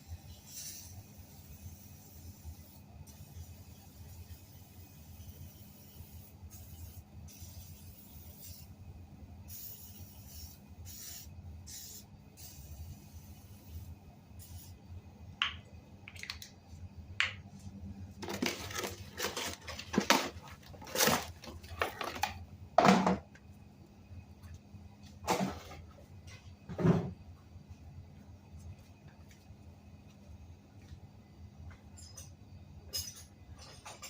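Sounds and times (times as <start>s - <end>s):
steady low hum: 0.0s - 34.0s
hands handling tools and parts: 18.2s - 23.0s.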